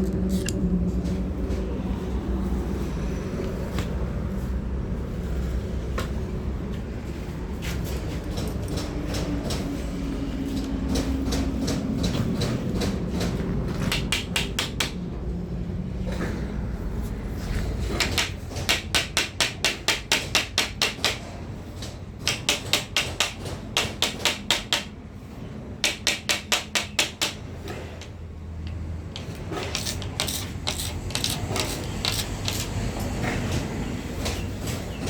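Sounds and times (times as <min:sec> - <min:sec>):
sharp hammer taps: 0:13.9 - 0:15.0, 0:25.8 - 0:28.1.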